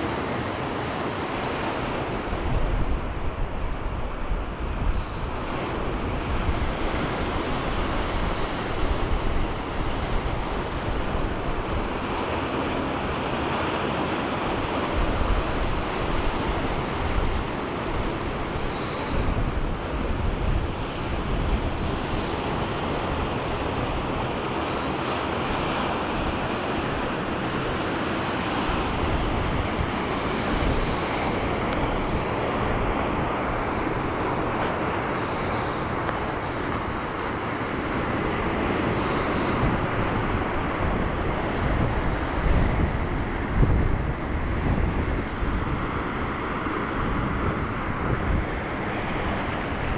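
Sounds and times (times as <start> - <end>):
surf washing onto shore: 0.0 - 49.9
wind rumbling on microphone: 1.9 - 13.4, 14.2 - 27.8, 28.4 - 49.9.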